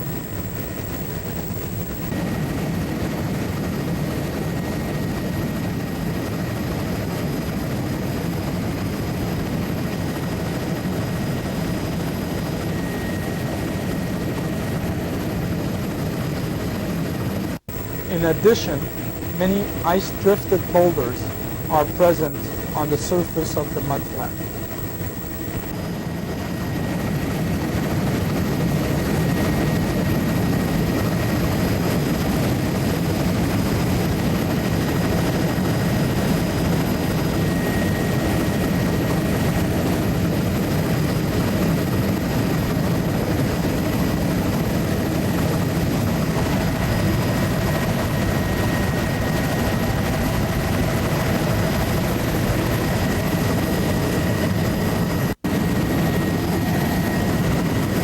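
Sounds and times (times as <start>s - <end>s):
aircraft engine drone: 0.0s - 2.1s, 17.7s - 25.8s
faint steady whine: 0.0s - 2.2s, 17.7s - 25.7s.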